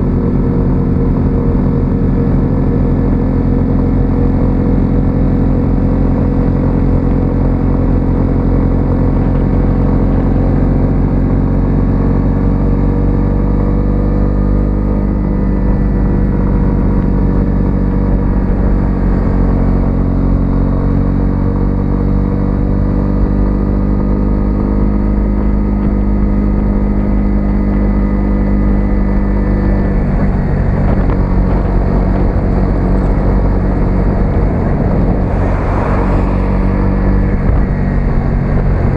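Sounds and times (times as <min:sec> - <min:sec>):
motorcycle engine cruising: 0:00.0 - 0:38.9
low rushing noise: 0:15.3 - 0:21.8, 0:27.6 - 0:38.9.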